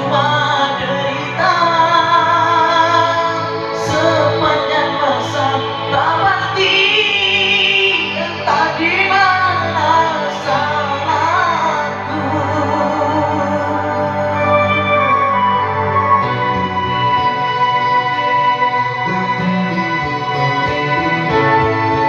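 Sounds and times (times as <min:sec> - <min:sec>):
woman singing: 0:00.0 - 0:16.2
ballad backing music: 0:00.0 - 0:22.0.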